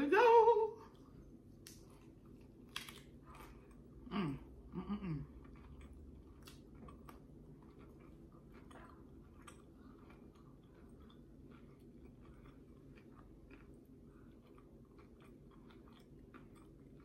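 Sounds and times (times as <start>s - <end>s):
chewing with wet clicks: 5.2s - 17.0s.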